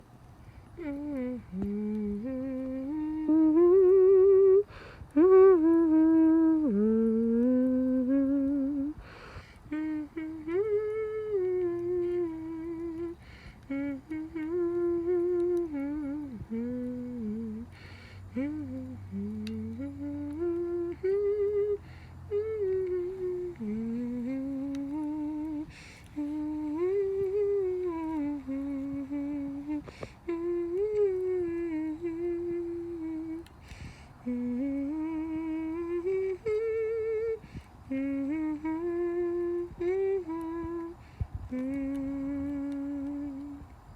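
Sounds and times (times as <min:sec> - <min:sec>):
person humming a melody: 0:00.0 - 0:43.9.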